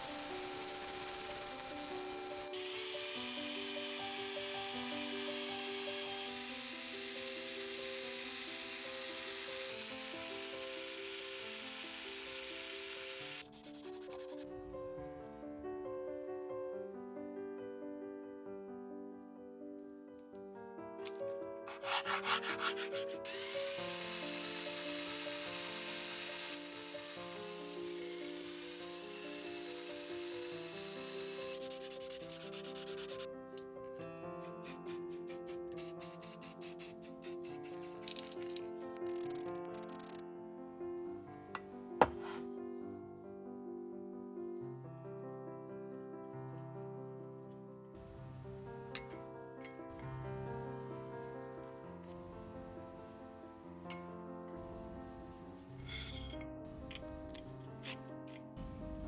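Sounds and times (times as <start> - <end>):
hand sanding: 13.4 - 14.5, 21.7 - 23.3
abrasive rubbing: 21.7 - 23.2
background music with melody: 40.2 - 59.0.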